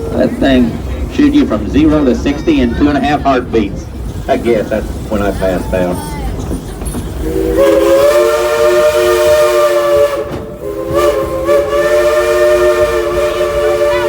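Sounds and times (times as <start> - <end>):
low rumble of train running: 0.0 - 14.0
steam locomotive chime whistle: 7.2 - 14.0.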